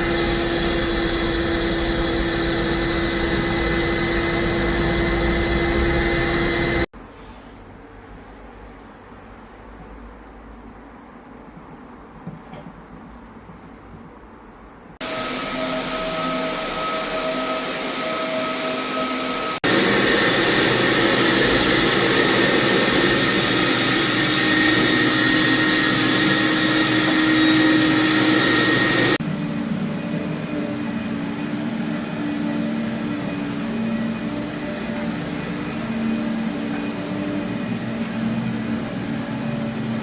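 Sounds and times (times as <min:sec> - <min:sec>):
cleaning machine motor whine: 0:00.0 - 0:06.9, 0:15.0 - 0:40.0.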